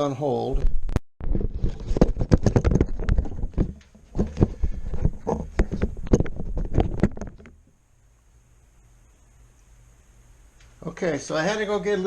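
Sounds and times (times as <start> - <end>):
knocks and clunks of handling: 1.3 - 7.7.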